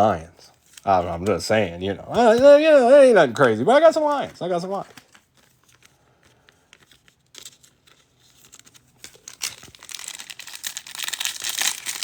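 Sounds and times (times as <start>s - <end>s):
wrapper tearing and crinkling: 6.7s - 12.0s.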